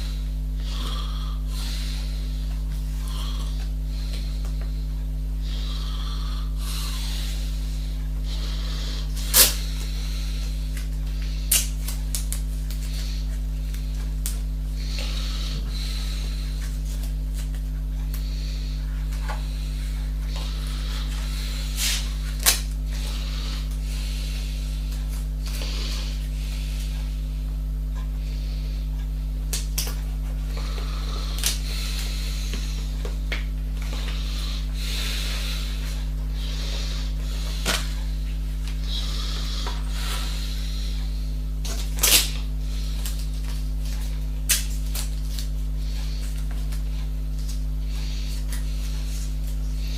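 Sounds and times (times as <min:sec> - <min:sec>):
low electrical hum: 0:00.0 - 0:49.9.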